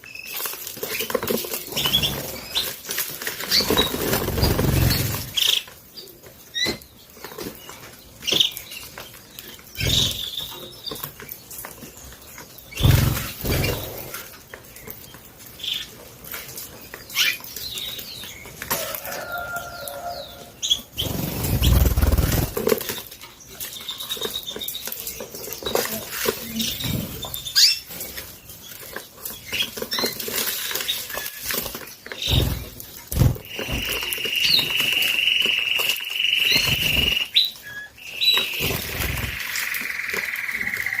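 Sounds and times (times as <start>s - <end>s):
canaries fluttering in cages: 0.0s - 41.0s
wing flaps and knocks: 12.8s - 14.1s, 31.5s - 34.2s.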